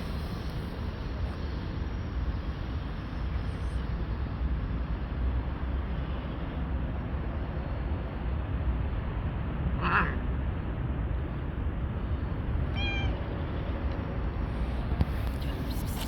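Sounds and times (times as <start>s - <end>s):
low outdoor rumble: 0.0s - 16.0s
cat meowing: 9.8s - 10.2s, 12.6s - 13.3s.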